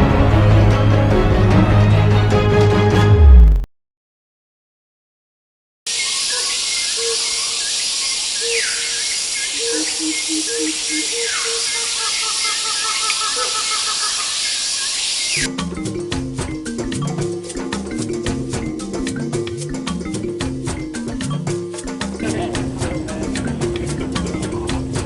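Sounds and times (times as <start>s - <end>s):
birds calling: 5.9s - 15.5s
insects hissing: 5.9s - 15.5s.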